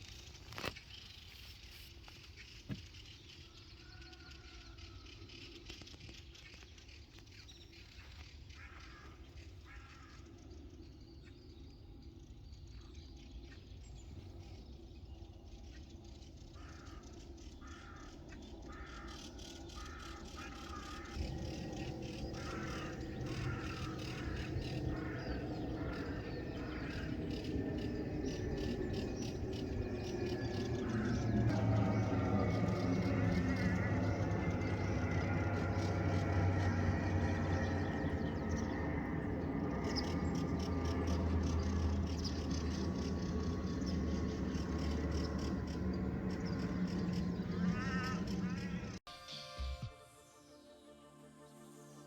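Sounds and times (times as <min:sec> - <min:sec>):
birds calling: 0:00.0 - 0:49.8
low rumble: 0:20.8 - 0:49.0.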